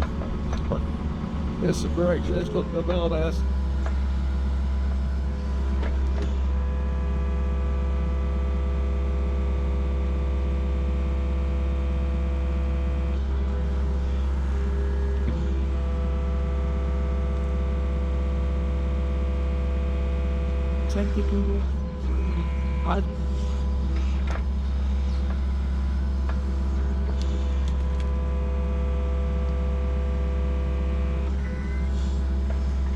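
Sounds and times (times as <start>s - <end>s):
excavator diesel engine running: 0.0s - 32.9s
hydraulic whine: 12.6s - 32.9s.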